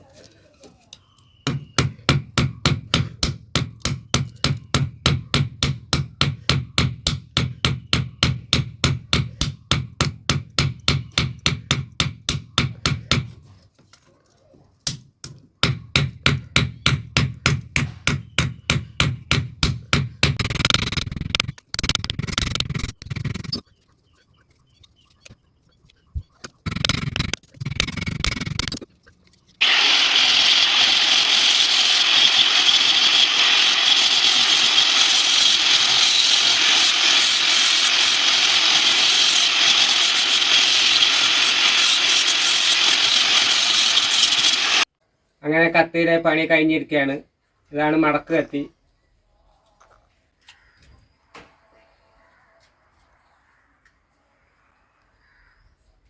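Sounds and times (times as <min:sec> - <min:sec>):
grinding noise: 0:20.3 - 0:23.6, 0:29.6 - 0:44.8
power tool running: 0:29.6 - 0:44.9.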